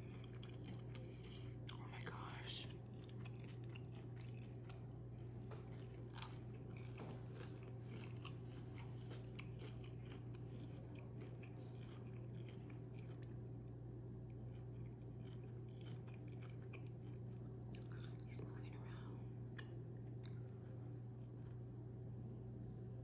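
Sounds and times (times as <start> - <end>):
chewing crunchy food: 0.0 - 22.0
steady low hum: 0.0 - 23.0.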